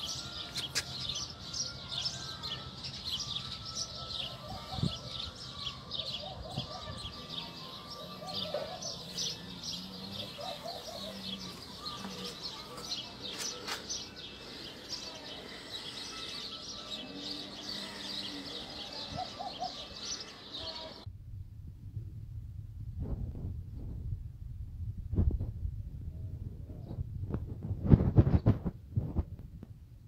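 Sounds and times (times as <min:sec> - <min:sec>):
small birds chirping: 0:00.0 - 0:21.1.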